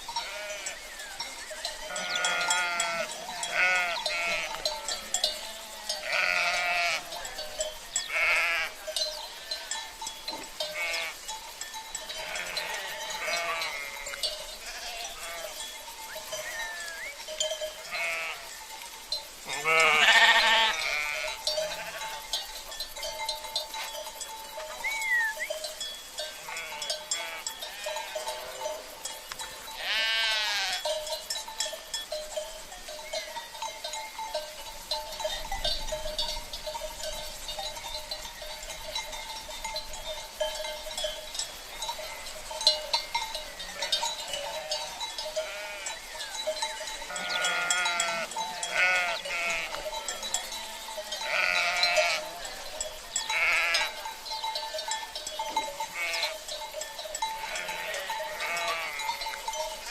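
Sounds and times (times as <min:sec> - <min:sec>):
ringing livestock bells: 0:00.0 - 0:59.9
sheep bleating: 0:00.2 - 0:00.8, 0:01.9 - 0:09.8, 0:10.6 - 0:11.2, 0:12.2 - 0:15.7, 0:16.3 - 0:17.2, 0:17.8 - 0:18.5, 0:19.5 - 0:22.2, 0:26.3 - 0:28.7, 0:29.8 - 0:30.9, 0:43.8 - 0:46.0, 0:47.1 - 0:49.8, 0:51.2 - 0:52.4, 0:53.2 - 0:54.0, 0:55.8 - 0:56.4, 0:57.4 - 0:59.2.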